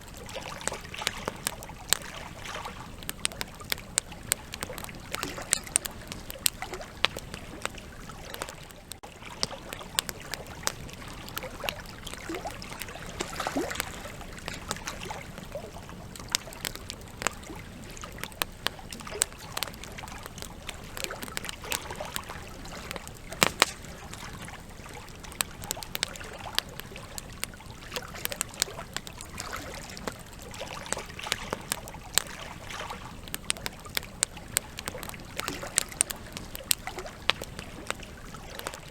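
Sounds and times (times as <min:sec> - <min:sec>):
campfire logs crackling: 0:00.0 - 0:38.9.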